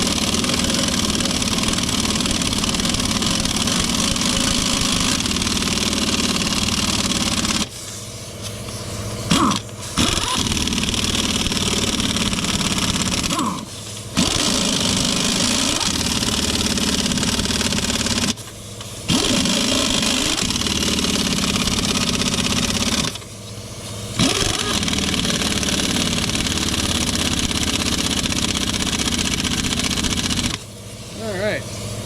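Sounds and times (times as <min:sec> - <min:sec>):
pneumatic impact wrench running: 0:00.0 - 0:32.0.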